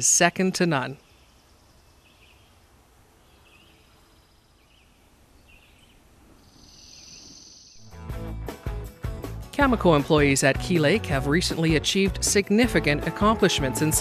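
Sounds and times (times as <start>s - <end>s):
low hiss: 0.0s - 7.8s
bird chirping: 0.0s - 7.9s.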